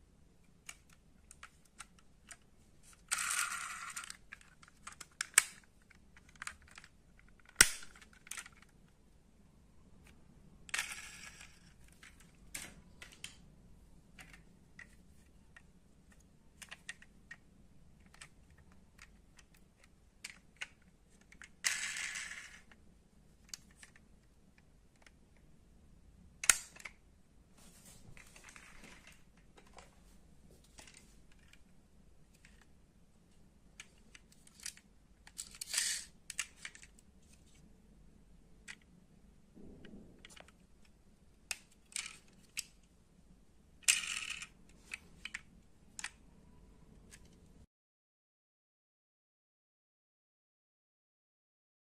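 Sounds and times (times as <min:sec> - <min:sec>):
model cars clicking and tapping: 0:03.1 - 0:08.7, 0:43.8 - 0:46.2.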